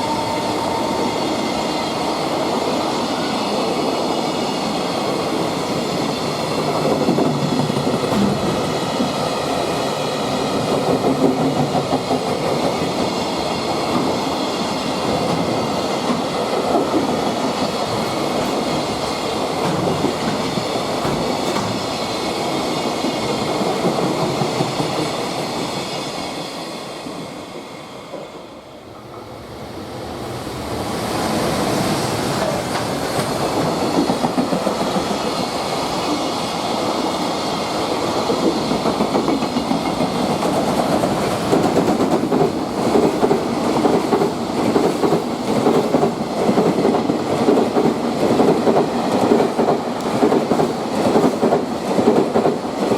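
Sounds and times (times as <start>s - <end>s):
freight train wagons clattering: 14.8s - 25.2s.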